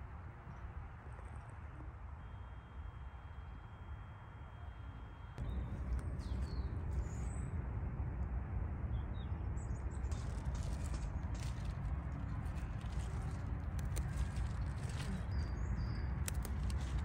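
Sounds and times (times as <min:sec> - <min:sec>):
low outdoor rumble: 0:03.2 - 0:17.0
small birds chirping: 0:09.2 - 0:17.0.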